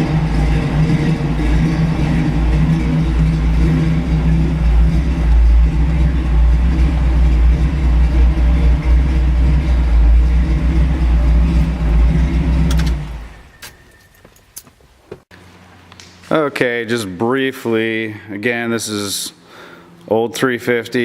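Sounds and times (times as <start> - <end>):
truck engine running: 0.0 - 15.2.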